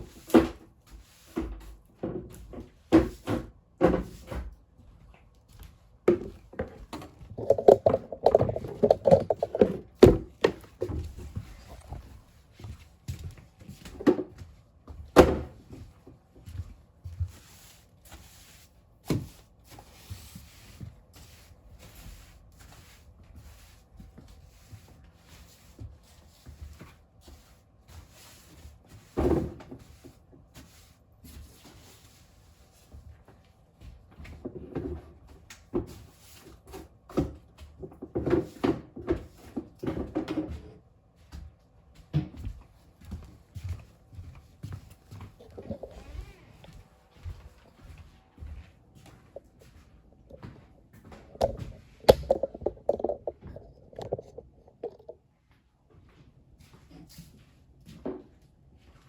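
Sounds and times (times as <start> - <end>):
knocks and bumps of handling: 6.1 - 12.0, 51.1 - 55.2.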